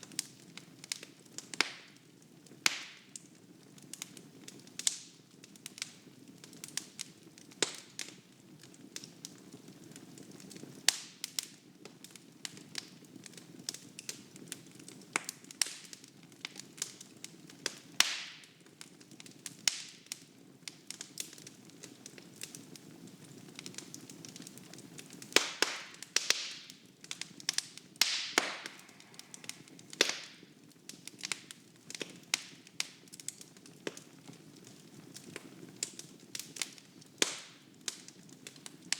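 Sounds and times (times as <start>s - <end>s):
wood fire crackling and popping: 0.0s - 38.9s
low rumble of flames: 27.0s - 32.5s.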